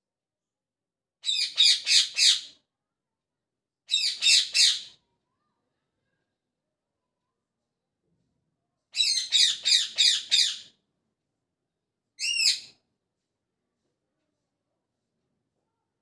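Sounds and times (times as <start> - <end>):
parrot chirping: 1.2 - 2.4, 3.9 - 4.9, 9.0 - 10.7, 12.2 - 12.7.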